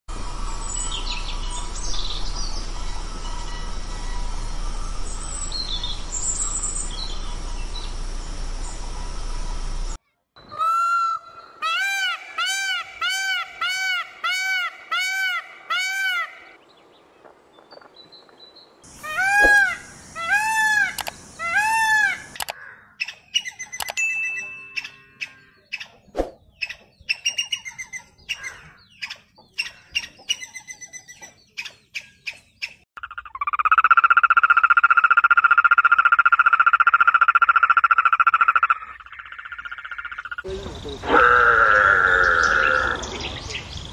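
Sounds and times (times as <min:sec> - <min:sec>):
peacock calling: 0:10.4 - 0:16.6, 0:18.9 - 0:24.0, 0:24.7 - 0:43.9
clicks and short chirps: 0:22.4 - 0:22.6, 0:23.7 - 0:24.0
tree frog trilling: 0:33.0 - 0:43.3.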